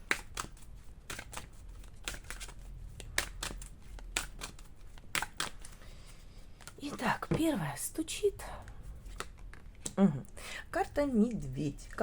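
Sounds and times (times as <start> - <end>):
cards being shuffled by hand: 0.0 - 7.6, 8.6 - 10.0.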